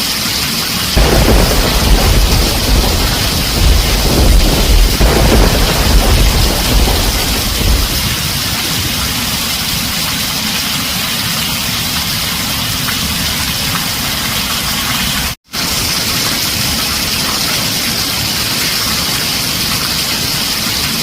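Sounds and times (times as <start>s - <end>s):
heavy rain on a tin roof: 0.0s - 21.0s
low thunder rumble: 1.0s - 10.0s.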